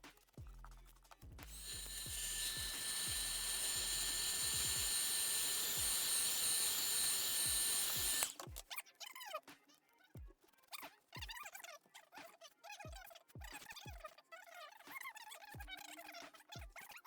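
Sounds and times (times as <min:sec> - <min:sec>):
power tool motor whining: 0:01.5 - 0:08.5.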